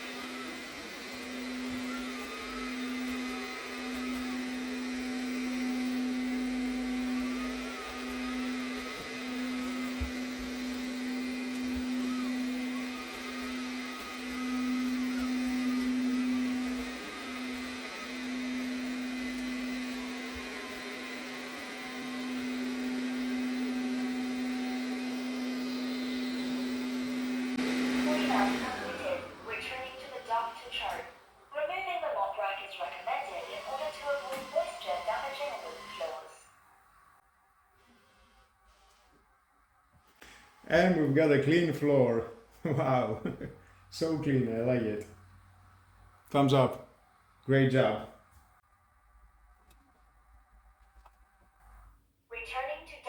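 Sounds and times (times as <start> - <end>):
robot vacuum motor humming: 0.0 - 31.1, 32.0 - 36.4.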